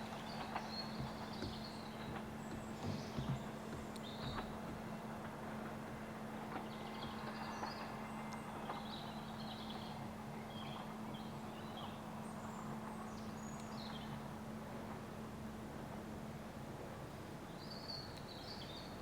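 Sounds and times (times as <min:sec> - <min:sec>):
small birds chirping: 0:00.0 - 0:04.9
steady low hum: 0:00.0 - 0:17.6.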